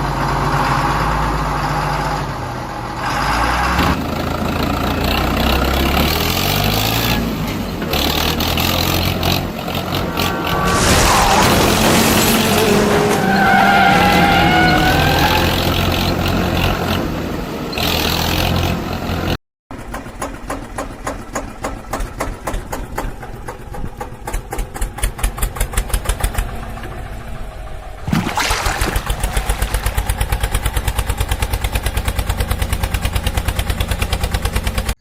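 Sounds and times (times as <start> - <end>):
heavy engine running: 0.0 - 28.1, 28.9 - 34.9
engine chugging: 28.9 - 34.9.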